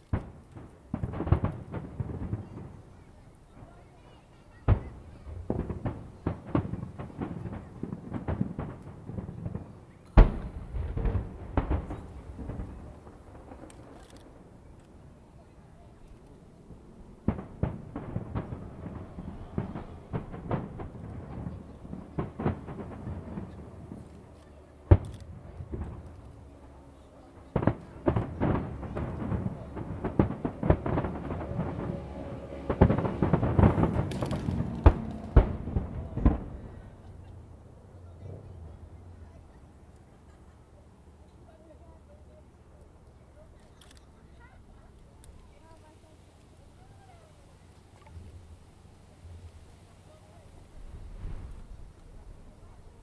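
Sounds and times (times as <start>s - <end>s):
fireworks shells bursting: 4.7s - 37.1s
loud firework boom: 10.2s - 13.6s, 17.0s - 23.7s, 27.5s - 37.2s.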